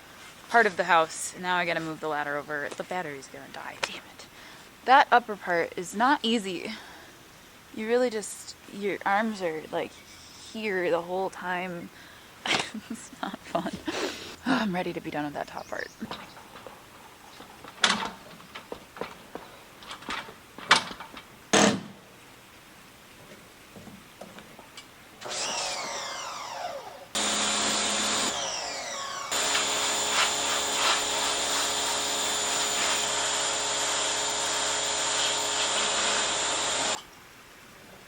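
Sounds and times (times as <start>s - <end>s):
pressure washer running: 25.2s - 37.0s.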